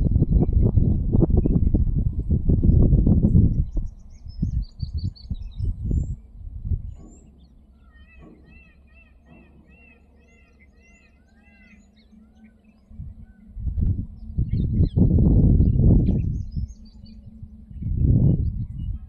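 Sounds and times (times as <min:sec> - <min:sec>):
birds chirping: 0:00.0 - 0:19.0
low gusty rumbling: 0:00.0 - 0:19.0
rapid run of arching bird notes: 0:07.0 - 0:17.8.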